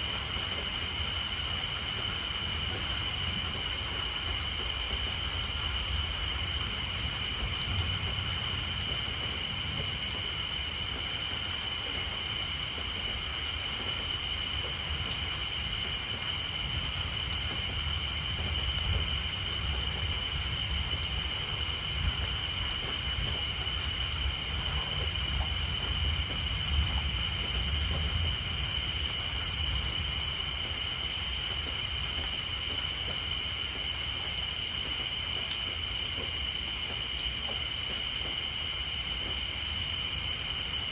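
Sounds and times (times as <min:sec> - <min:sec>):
rain on a tin roof: 0:00.0 - 0:40.9
tree frogs chorus: 0:00.0 - 0:40.9
distant thunder rumble: 0:16.5 - 0:30.8.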